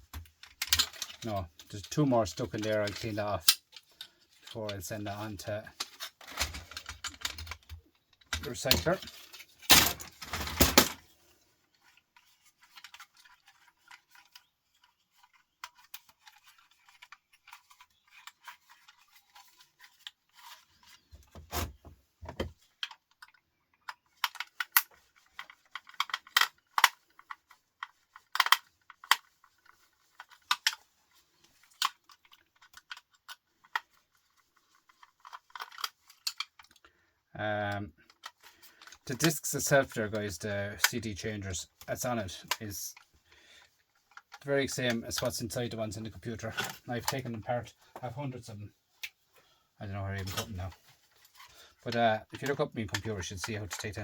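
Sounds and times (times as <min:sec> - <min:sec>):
metal parts clinking: 0:00.1 - 0:04.6, 0:05.8 - 0:11.0, 0:34.8 - 0:36.8.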